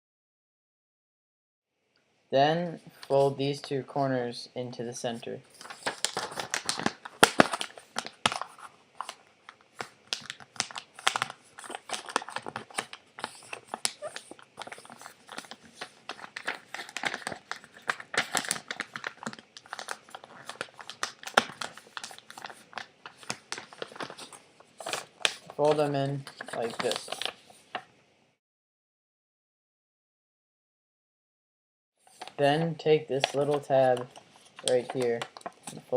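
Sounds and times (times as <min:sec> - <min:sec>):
paper rustling and crinkling: 0:05.5 - 0:27.9, 0:32.0 - 0:32.4, 0:33.1 - 0:35.9.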